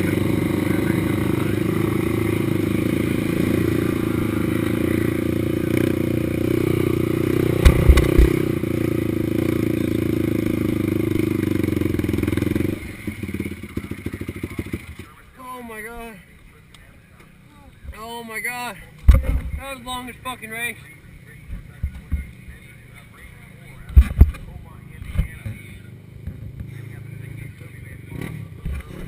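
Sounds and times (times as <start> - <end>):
atv engine running: 0.0 - 29.0
loud thumps: 7.5 - 8.6.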